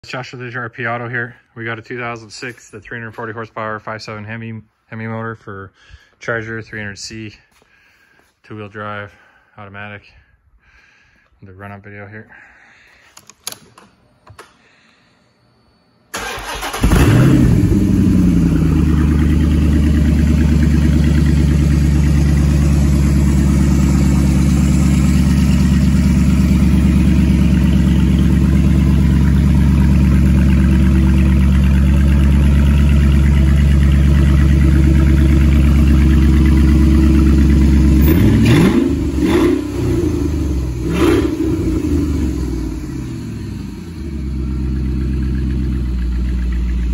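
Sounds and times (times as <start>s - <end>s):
engine idling: 16.1s - 46.9s
engine cranking: 16.2s - 17.5s
engine revving blips: 37.3s - 44.5s.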